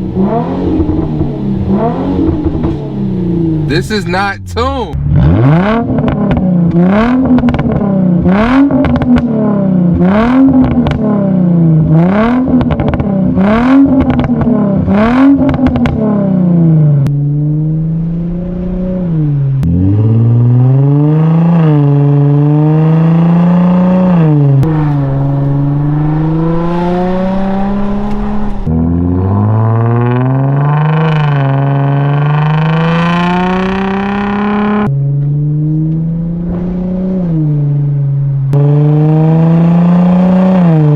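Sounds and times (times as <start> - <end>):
car engine revving: 0.0 - 40.9
car accelerating through gears: 5.1 - 11.3, 11.9 - 37.9, 38.5 - 40.9.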